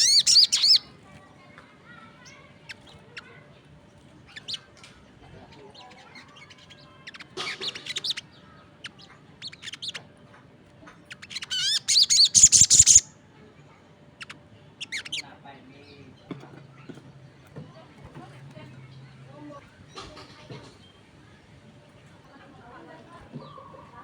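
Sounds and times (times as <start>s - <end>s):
bird warbling: 0.0s - 0.9s, 5.9s - 8.2s, 11.1s - 13.1s
songbirds chirping: 0.0s - 24.0s.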